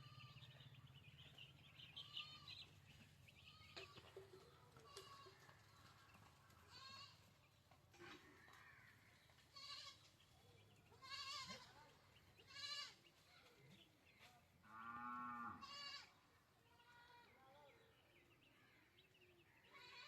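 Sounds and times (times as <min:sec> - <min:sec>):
farm animals bleating: 0:00.0 - 0:00.8, 0:01.7 - 0:05.9, 0:06.5 - 0:07.4, 0:08.0 - 0:10.2, 0:10.8 - 0:13.7, 0:14.6 - 0:17.9, 0:19.5 - 0:20.0.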